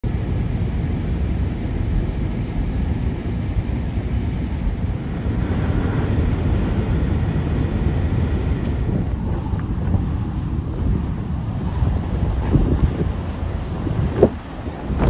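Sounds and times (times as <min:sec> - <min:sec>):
strong wind buffeting microphone: 0:00.1 - 0:15.0.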